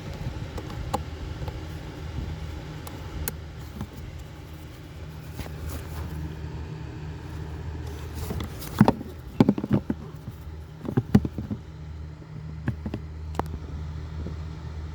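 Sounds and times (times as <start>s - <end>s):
low hum inside car: 0.0s - 14.9s
sharp clicks and knocks: 8.2s - 11.6s.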